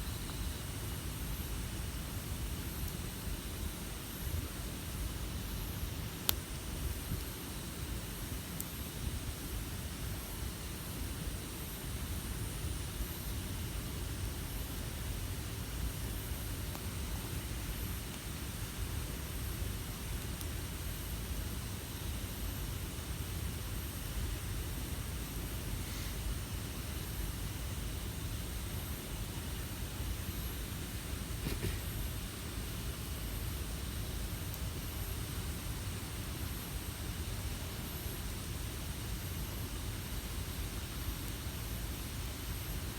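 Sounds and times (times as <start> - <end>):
campfire burning: 0.0 - 42.9
fire popping: 14.2 - 20.7, 30.6 - 32.5.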